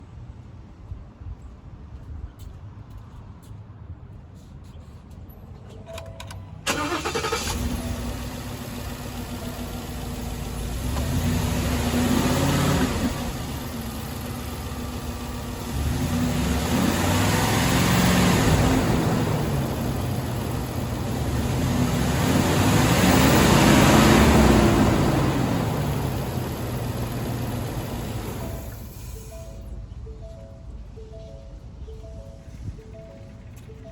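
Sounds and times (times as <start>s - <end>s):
pickup engine cranking and idling: 6.6s - 29.7s
engine revving: 6.7s - 29.0s.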